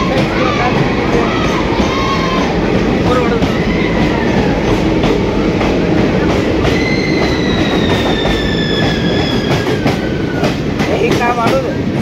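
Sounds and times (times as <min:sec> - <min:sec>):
train rumbling: 0:00.0 - 0:12.0
high metallic squeal: 0:06.7 - 0:10.4.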